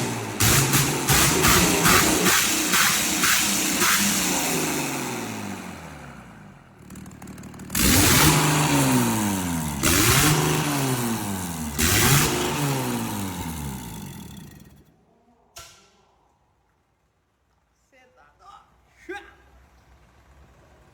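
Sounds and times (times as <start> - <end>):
car engine revving: 0.0 - 14.8
short click: 15.6 - 16.0.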